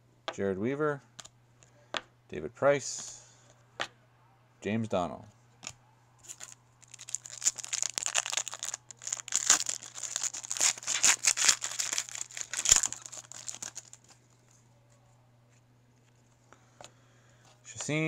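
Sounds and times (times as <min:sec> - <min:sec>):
foil wrapper tearing and crinkling: 0:06.2 - 0:14.2.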